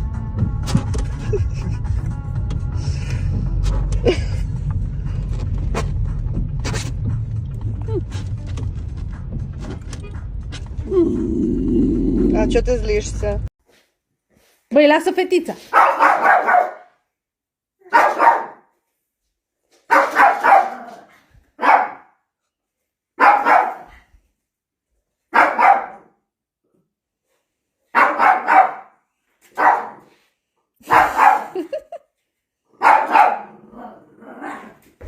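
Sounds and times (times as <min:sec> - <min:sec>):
dog barking: 0:15.7 - 0:17.0, 0:17.8 - 0:18.7, 0:19.9 - 0:22.2, 0:23.2 - 0:24.1, 0:25.3 - 0:26.1, 0:27.9 - 0:30.2, 0:30.8 - 0:31.7, 0:32.8 - 0:33.8.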